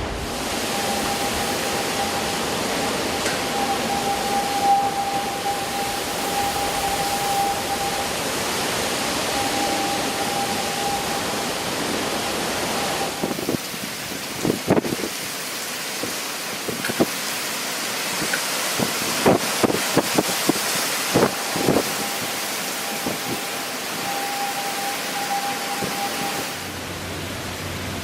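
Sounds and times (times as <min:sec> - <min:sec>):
wind and heavy rain hissing: 0:00.0 - 0:28.0
thin steady tone: 0:00.5 - 0:13.5, 0:21.2 - 0:27.1.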